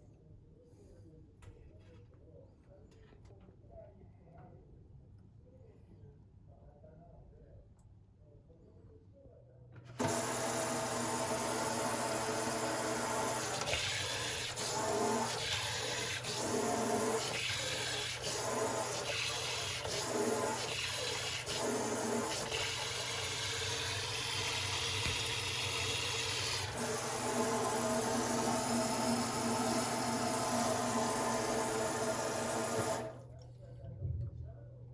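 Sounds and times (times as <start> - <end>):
water running from a tap: 10.0 - 33.2.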